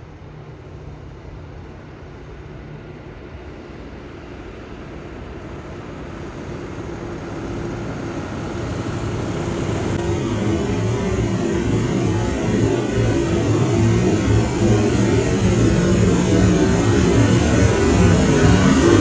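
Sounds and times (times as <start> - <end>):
diesel engine running: 5.3 - 19.0.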